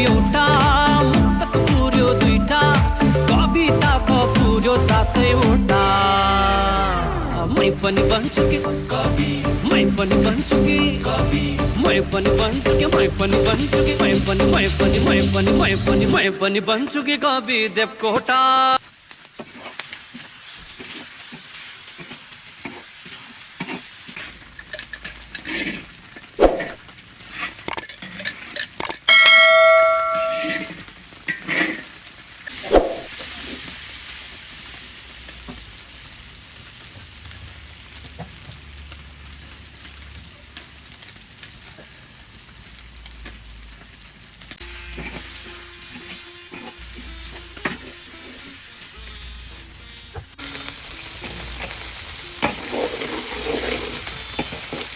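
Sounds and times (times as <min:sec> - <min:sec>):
curry sizzling in a pan: 0:00.0 - 0:06.1, 0:06.8 - 0:54.9
utensil scraping a pan: 0:20.7 - 0:28.7, 0:30.0 - 0:33.1, 0:44.9 - 0:49.3, 0:52.4 - 0:54.9
metal pot ringing: 0:29.0 - 0:30.8.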